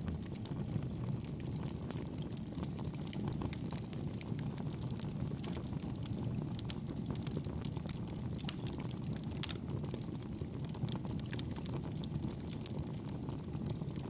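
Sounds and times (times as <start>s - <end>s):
fire crackling in a fireplace: 0.0s - 14.0s.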